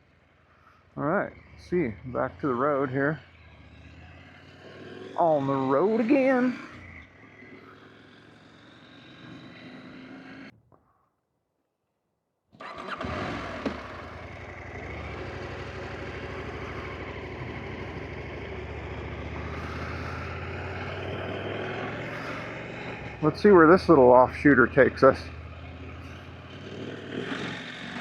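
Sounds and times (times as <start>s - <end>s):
motorcycle engine running: 1.0s - 10.5s, 12.7s - 28.0s.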